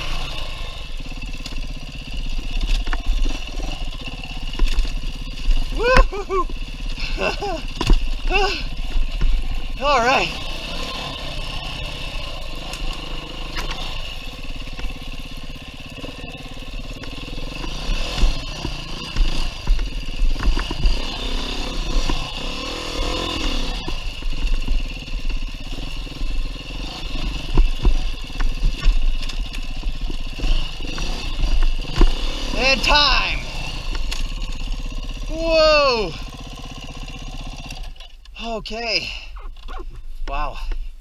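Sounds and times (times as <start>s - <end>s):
dirt bike engine revving: 0.0s - 38.2s
knocks and clatter: 17.0s - 21.2s.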